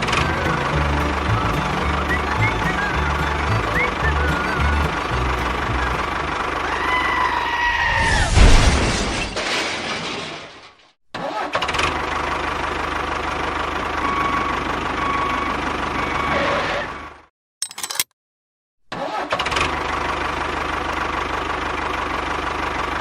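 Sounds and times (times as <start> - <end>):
engine running steadily: 0.0 - 6.8.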